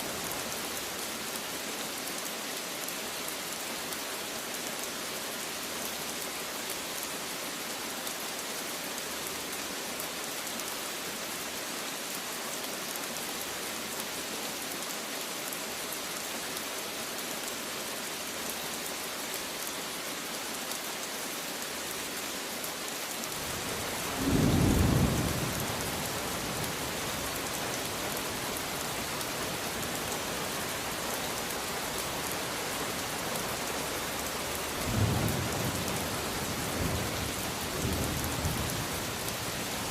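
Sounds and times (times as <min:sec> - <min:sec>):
rain hissing: 0:23.3 - 0:39.9.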